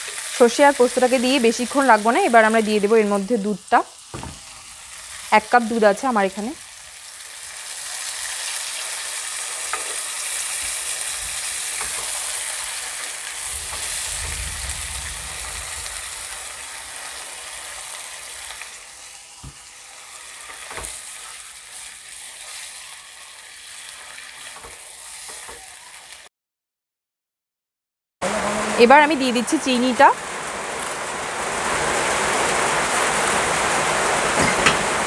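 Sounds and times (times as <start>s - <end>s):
vegetables sizzling in a pan: 0.0s - 26.3s, 28.2s - 35.0s
spatula knocking against pan: 4.1s - 4.4s.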